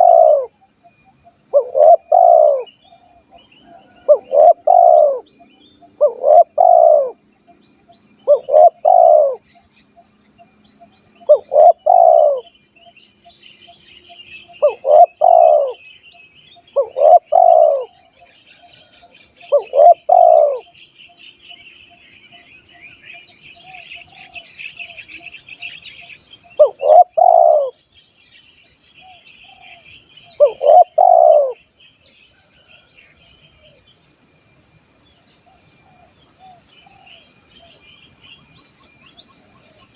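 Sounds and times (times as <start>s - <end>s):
dove cooing: 0.0s - 0.6s, 1.5s - 5.3s, 6.0s - 7.2s, 8.2s - 9.5s, 11.2s - 12.5s, 14.6s - 15.8s, 16.7s - 18.2s, 18.8s - 20.7s, 26.6s - 27.8s, 29.0s - 31.6s
faint chirping: 0.0s - 39.9s.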